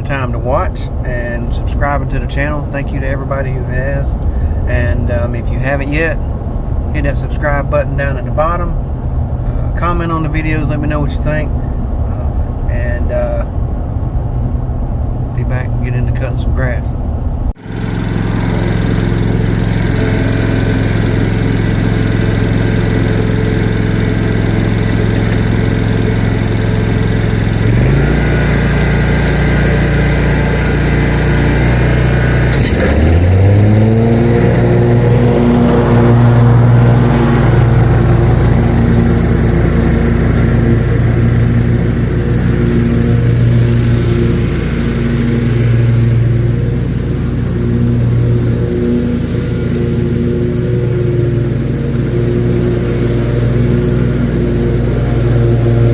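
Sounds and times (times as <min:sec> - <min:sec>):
lawn mower engine running: 0:17.6 - 0:55.9.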